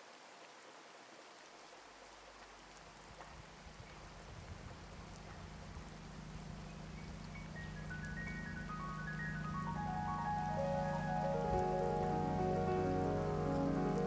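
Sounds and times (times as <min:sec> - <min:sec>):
rain pattering: 0:02.0 - 0:14.0
low steady hum: 0:03.4 - 0:14.0.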